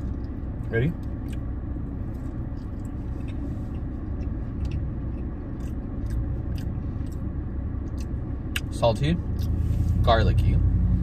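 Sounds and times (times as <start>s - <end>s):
low car rumble: 0.0s - 11.0s
person chewing: 1.0s - 8.7s, 9.3s - 9.8s.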